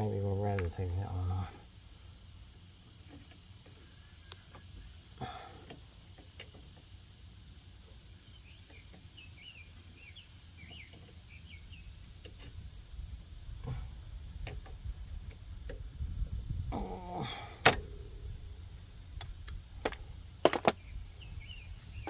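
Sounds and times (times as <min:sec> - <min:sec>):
bird chirping: 0:08.0 - 0:12.4, 0:20.8 - 0:22.0
hand tools clinking on metal: 0:19.5 - 0:20.8.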